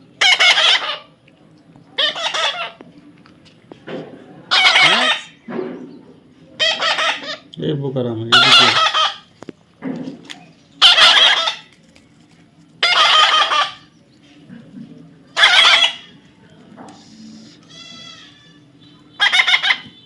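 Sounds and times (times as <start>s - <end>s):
parrot squawking: 0.2s - 1.1s, 2.0s - 2.8s, 4.5s - 5.4s, 6.6s - 7.5s, 8.3s - 9.3s, 10.8s - 11.7s, 12.8s - 13.9s, 15.4s - 16.2s, 17.7s - 20.0s.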